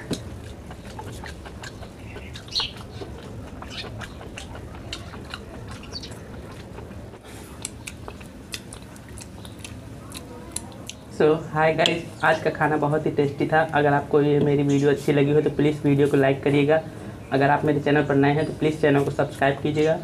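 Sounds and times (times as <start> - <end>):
chewing and lip smacking: 0.0 - 11.1
low steady hum: 0.0 - 20.0.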